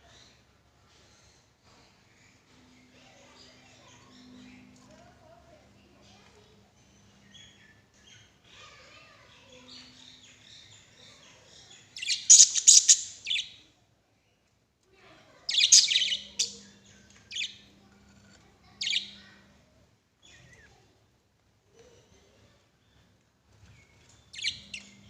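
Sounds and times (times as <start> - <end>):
lovebirds chirping: 9.6 - 13.6, 15.5 - 17.7, 24.2 - 25.0.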